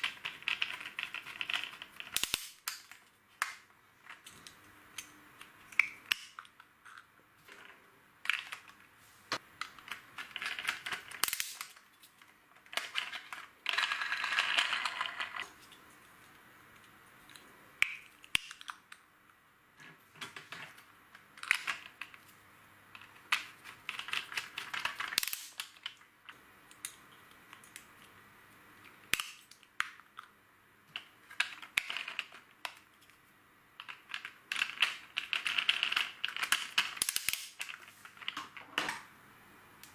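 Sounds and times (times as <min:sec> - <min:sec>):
plastic bricks clicking: 0:00.0 - 0:08.8, 0:22.9 - 0:26.0, 0:33.8 - 0:38.9
plastic bricks rattling: 0:23.0 - 0:26.0, 0:33.8 - 0:38.7.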